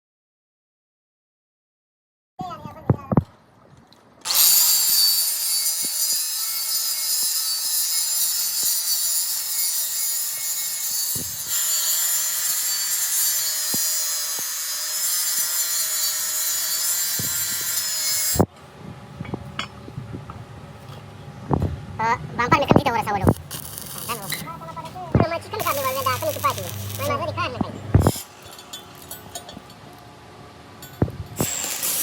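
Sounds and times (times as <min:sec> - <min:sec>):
angle grinder grinding metal: 0:04.3 - 0:18.5, 0:23.0 - 0:29.6, 0:30.9 - 0:32.0.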